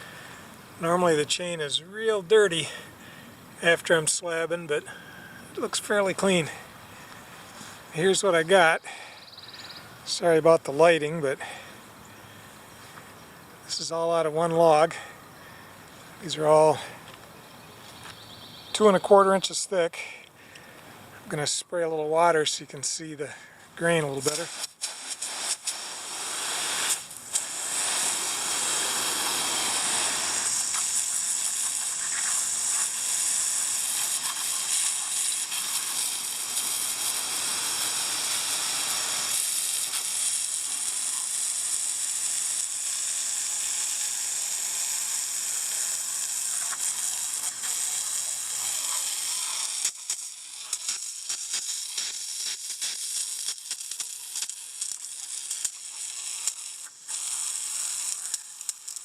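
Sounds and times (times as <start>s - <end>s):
water spraying from a nozzle: 23.9s - 59.0s.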